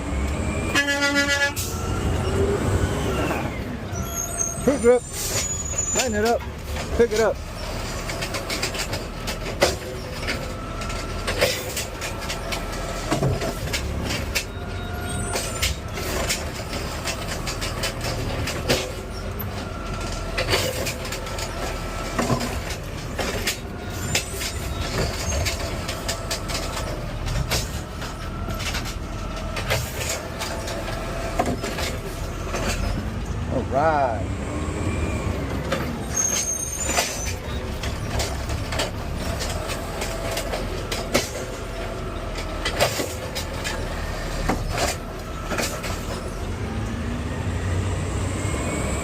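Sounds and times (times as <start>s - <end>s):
truck engine rumble: 0.0s - 49.0s.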